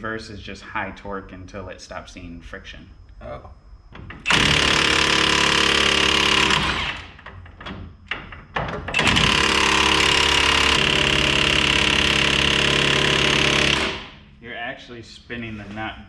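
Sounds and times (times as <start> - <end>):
impact wrench hammering: 8.9 - 14.2.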